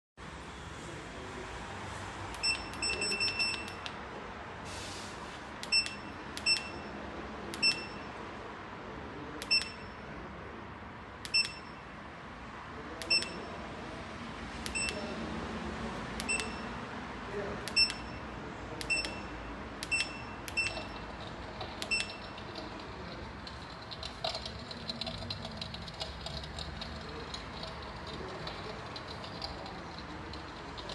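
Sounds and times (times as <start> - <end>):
short electronic beeps: 2.4 - 3.8, 5.7 - 7.0, 7.6 - 8.2, 9.4 - 10.0, 11.3 - 11.8, 13.1 - 13.6, 14.7 - 15.1, 16.2 - 16.8, 17.7 - 24.5.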